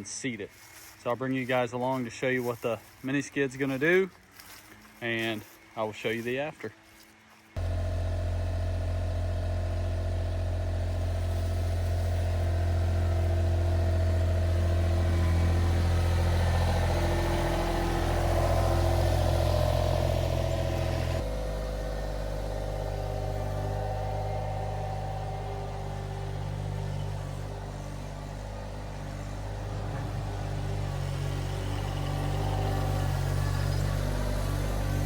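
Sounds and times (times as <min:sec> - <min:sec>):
skid steer engine running: 0:07.6 - 0:35.0.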